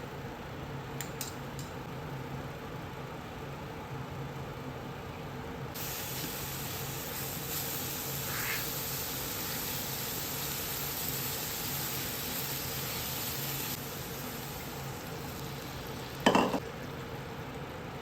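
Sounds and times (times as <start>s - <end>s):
food sizzling in a pan: 5.8s - 16.9s
pan knock or scrape: 16.3s - 16.6s.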